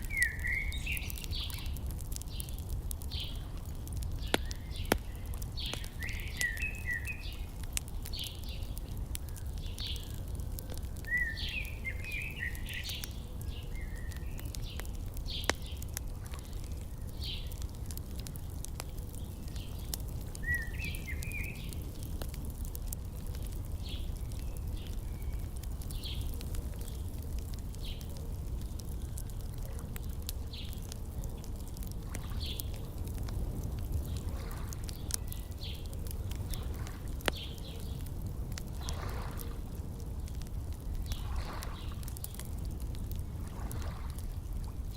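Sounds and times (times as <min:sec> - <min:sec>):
birds chirping: 0:00.0 - 0:22.4, 0:23.4 - 0:32.8
wood fire crackling: 0:00.0 - 0:44.9.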